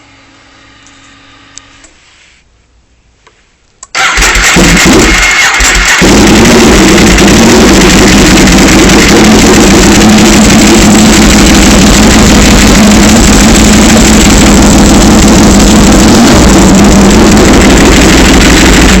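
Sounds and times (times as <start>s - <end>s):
motorcycle engine idling loudly: 4.0s - 19.0s.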